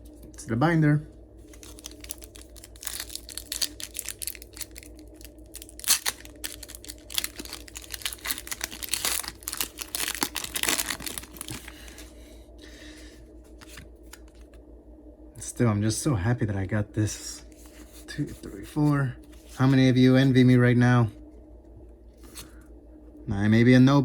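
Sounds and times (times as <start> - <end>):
foil wrapper crinkling and tearing: 1.4 - 12.1
trading cards being handled: 1.4 - 12.2.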